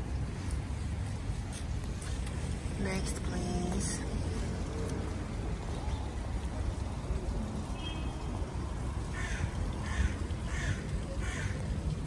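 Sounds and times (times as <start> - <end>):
low outdoor rumble: 0.0 - 12.0
bird cawing: 9.0 - 11.8.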